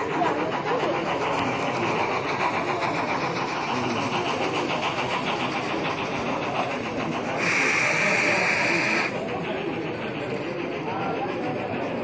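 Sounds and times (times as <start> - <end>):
train running: 0.0 - 12.0
loud hiss: 1.0 - 9.2.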